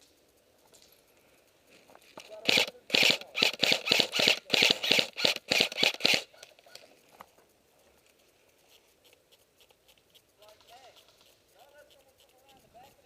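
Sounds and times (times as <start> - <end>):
airsoft gun rapid shots: 2.2 - 6.8.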